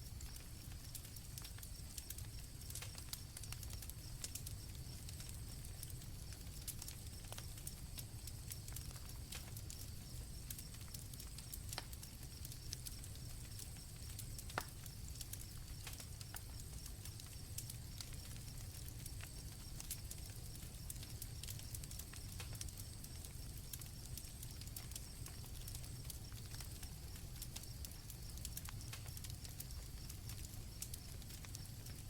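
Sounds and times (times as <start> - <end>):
campfire crackling and popping: 0.0 - 32.0
crickets trilling: 0.0 - 32.0.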